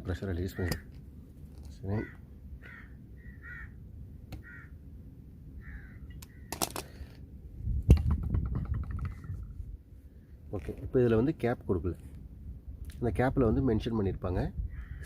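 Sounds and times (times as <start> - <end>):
crows cawing: 0.5 - 1.0, 1.9 - 3.8, 4.4 - 4.8, 5.6 - 6.7, 14.7 - 15.0
rumbling handling noise: 5.6 - 13.0.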